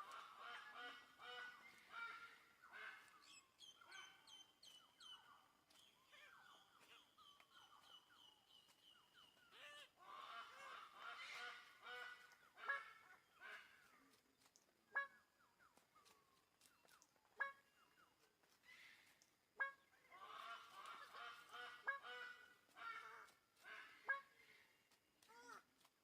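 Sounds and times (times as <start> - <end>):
birds calling rapidly: 0.0 - 13.9.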